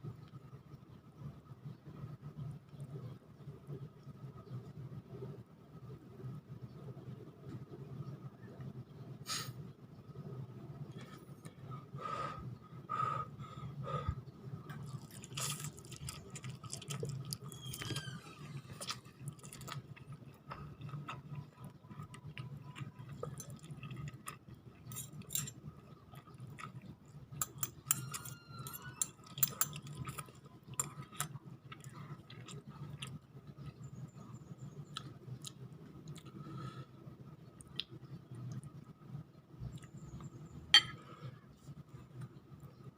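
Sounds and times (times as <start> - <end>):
steady low hum: 0.0 - 42.9
person chewing noodles: 14.8 - 18.0, 18.7 - 34.2, 34.8 - 36.6.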